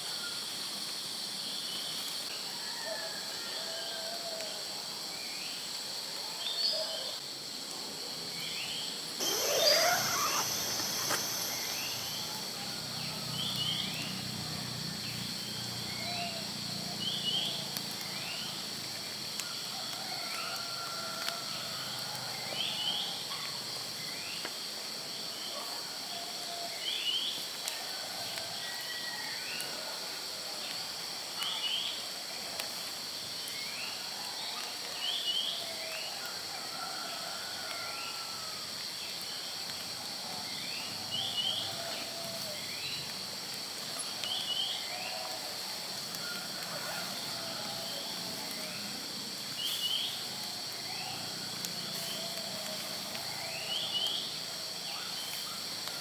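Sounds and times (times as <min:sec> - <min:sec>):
high insect drone: 0:08.9 - 0:19.4
soft wavering bird calls: 0:09.2 - 0:14.0.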